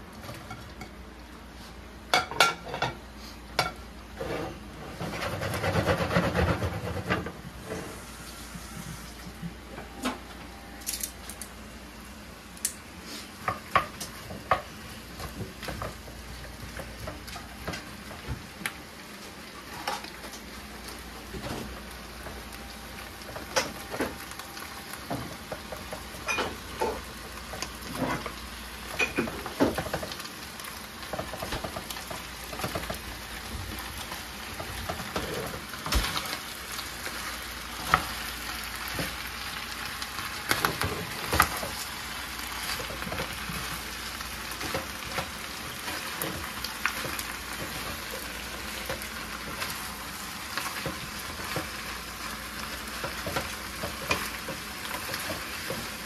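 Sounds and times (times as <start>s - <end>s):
utensil scraping pan: 4.2s - 8.0s
beef and onions sizzling: 11.7s - 56.0s.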